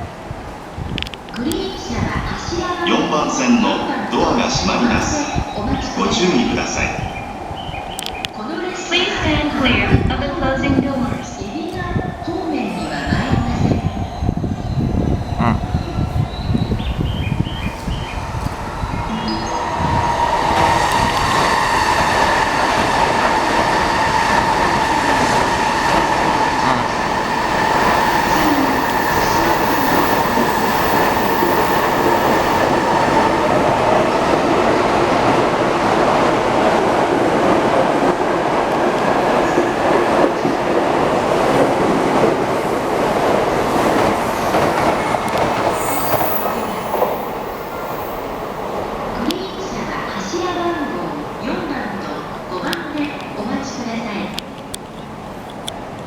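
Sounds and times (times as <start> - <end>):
train wheels rolling on rails: 0.0 - 56.0
electric train motor whine: 23.9 - 34.6.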